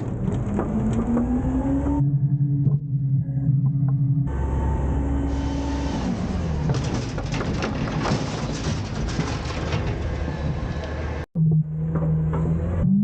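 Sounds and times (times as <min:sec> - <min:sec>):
hydraulic whine: 0:00.7 - 0:06.7
garbage truck engine running: 0:03.8 - 0:12.8
bin clattering into truck: 0:06.5 - 0:10.7.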